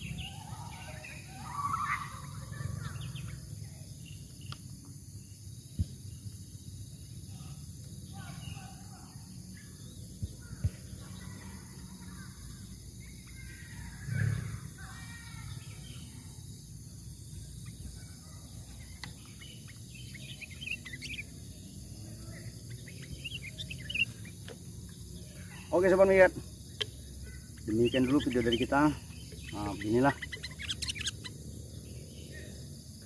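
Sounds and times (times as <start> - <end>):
birds chirping and trilling: 0.0 - 33.0
high insect hum: 0.0 - 33.0.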